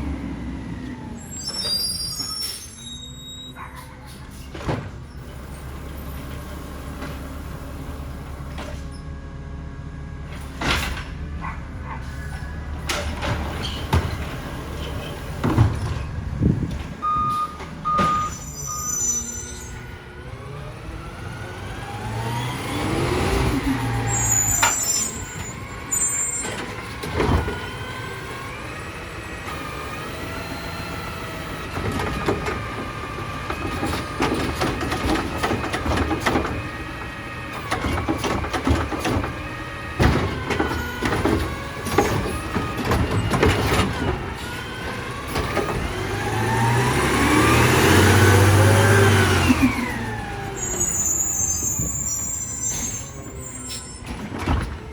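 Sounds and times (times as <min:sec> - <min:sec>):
garbage truck diesel engine revving: 0:00.0 - 0:01.9, 0:19.7 - 0:54.9
knocks and clatters of cart: 0:03.6 - 0:08.9, 0:10.3 - 0:18.5, 0:23.3 - 0:28.2, 0:30.9 - 0:54.9
hydraulic whine: 0:21.8 - 0:54.9.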